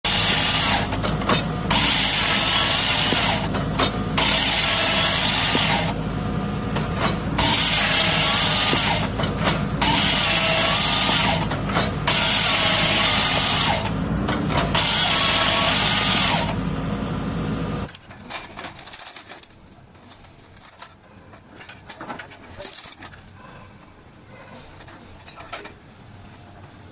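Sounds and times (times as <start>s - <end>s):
grapple saw cutting logs: 0.0s - 6.1s, 6.7s - 16.6s
excavator engine and hydraulics: 0.0s - 26.9s.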